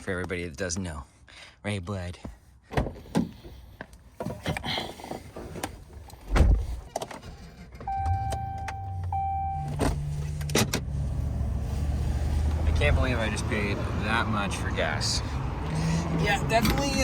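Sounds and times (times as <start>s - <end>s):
two-part electronic warning chime: 7.9s - 9.8s.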